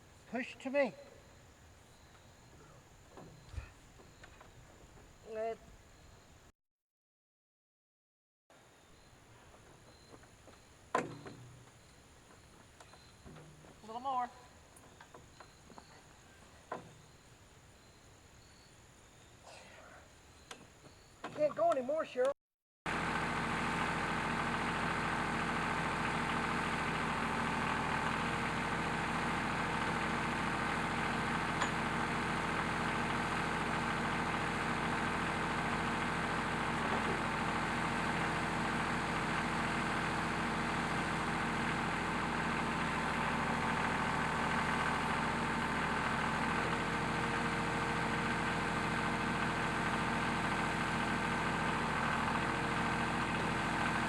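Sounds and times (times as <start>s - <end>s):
tractor engine idling: 22.9s - 54.0s.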